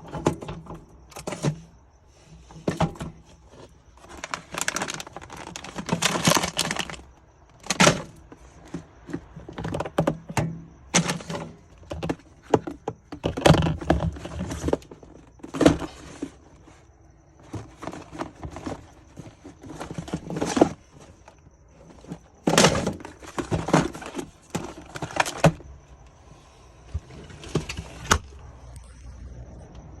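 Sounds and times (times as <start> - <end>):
objects knocking and rattling: 2.4 - 16.5, 17.4 - 25.6
faint high whine: 28.0 - 30.0.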